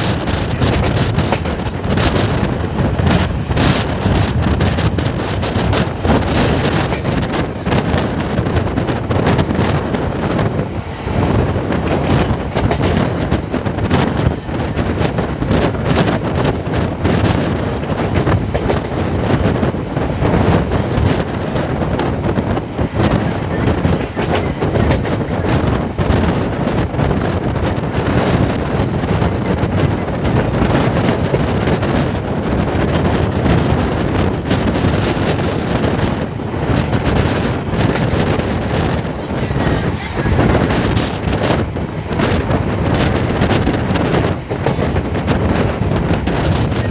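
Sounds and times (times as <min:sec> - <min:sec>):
train rumbling on rails: 0:00.0 - 0:46.9
wind buffeting microphone: 0:00.0 - 0:46.9.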